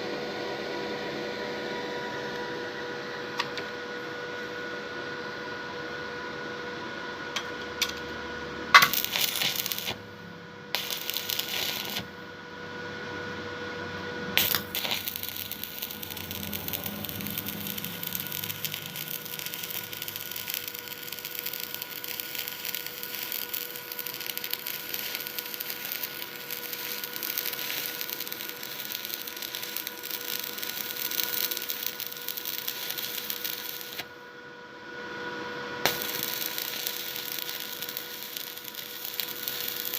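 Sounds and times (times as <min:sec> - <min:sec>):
steady hum: 0:00.0 - 0:39.9
arc welding crackle and sizzle: 0:07.4 - 0:12.4, 0:14.2 - 0:34.3, 0:35.8 - 0:39.9.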